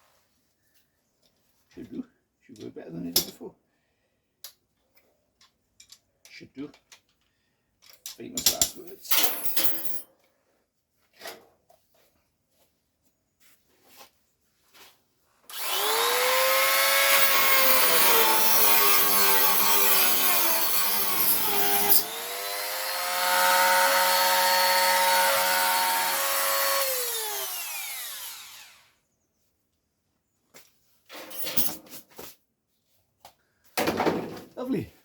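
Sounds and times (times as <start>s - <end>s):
rotary tool whine: 15.5s - 29.0s.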